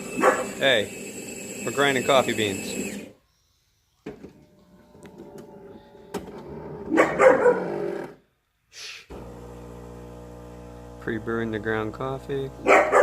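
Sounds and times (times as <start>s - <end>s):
motor hum: 0.0s - 3.1s, 9.1s - 13.0s.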